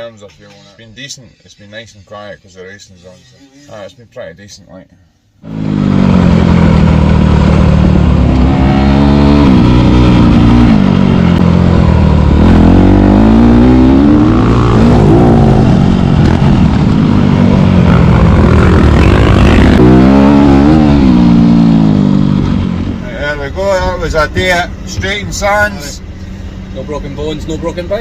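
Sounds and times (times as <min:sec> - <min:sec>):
motocross bike engine revving: 0:05.4 - 0:22.7.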